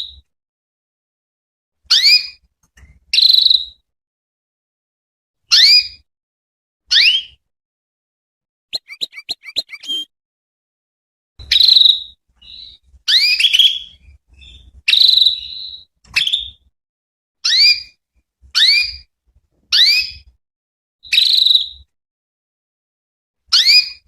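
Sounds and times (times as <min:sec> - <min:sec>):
canary whistled calls: 0:06.9 - 0:07.4, 0:08.7 - 0:10.1, 0:11.5 - 0:16.6, 0:21.0 - 0:21.9.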